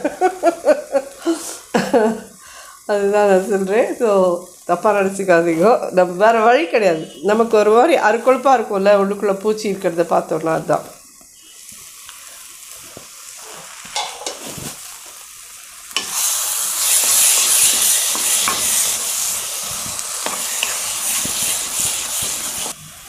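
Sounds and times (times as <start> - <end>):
food sizzling in a pan: 0.0 - 23.0.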